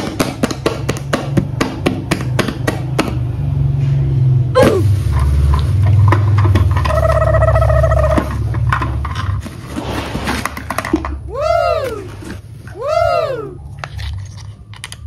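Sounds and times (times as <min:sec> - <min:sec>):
paper tearing and crumpling: 0:09.4 - 0:10.8.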